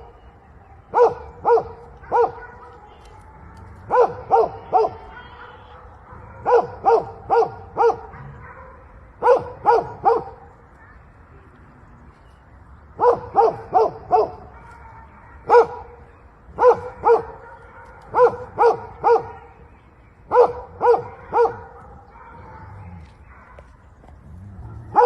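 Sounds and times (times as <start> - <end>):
dog barking: 0.9 - 2.9, 3.9 - 11.0, 13.0 - 19.6, 20.3 - 23.9, 24.6 - 25.0.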